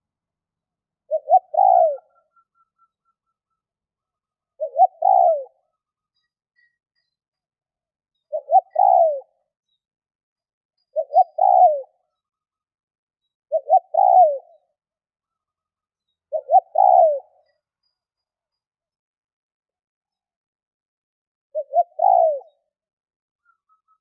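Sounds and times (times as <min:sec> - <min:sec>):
dove cooing: 0:01.1 - 0:02.8, 0:04.6 - 0:05.7, 0:08.3 - 0:09.4, 0:10.9 - 0:12.0, 0:13.5 - 0:14.6, 0:16.3 - 0:17.5, 0:21.6 - 0:22.6.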